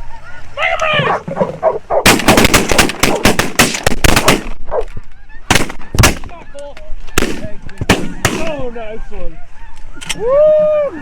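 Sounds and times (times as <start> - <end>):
shotgun blasts: 2.0 - 4.6, 5.5 - 6.3, 7.2 - 8.6.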